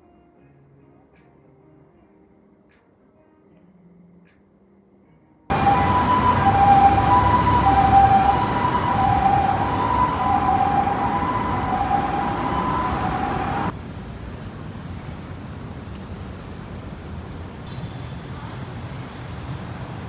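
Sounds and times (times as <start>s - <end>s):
two-tone emergency siren: 5.5s - 13.8s
traffic noise: 5.5s - 20.0s.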